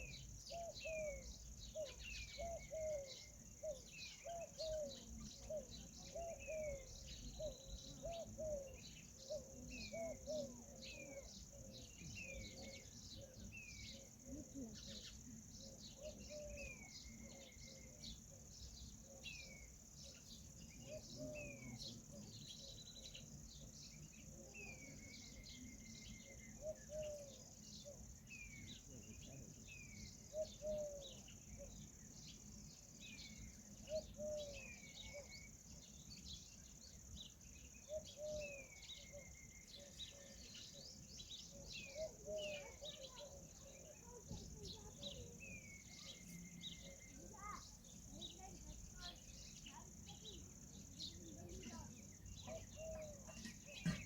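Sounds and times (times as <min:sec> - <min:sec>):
cricket chorus: 0:00.0 - 0:54.0
descending whistled bird calls: 0:29.8 - 0:54.0.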